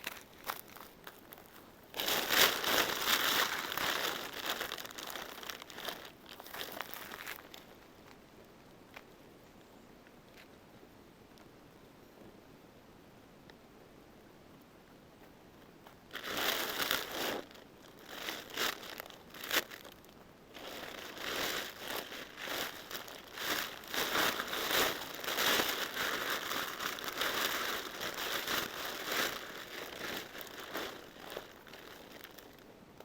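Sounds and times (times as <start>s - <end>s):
plastic sheeting crinkling: 0.0s - 7.7s, 16.1s - 32.6s.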